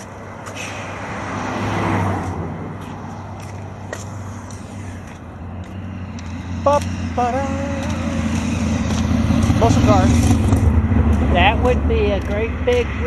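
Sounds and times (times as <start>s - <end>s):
car road noise: 0.0s - 13.0s
vehicle passing: 0.0s - 13.0s
person's voice: 9.6s - 10.2s, 11.2s - 13.0s.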